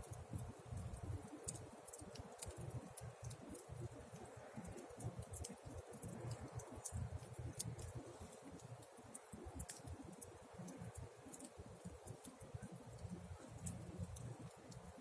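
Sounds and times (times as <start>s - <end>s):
campfire crackling and popping: 0.0s - 15.0s
low fluttering fire rumble: 0.0s - 15.0s.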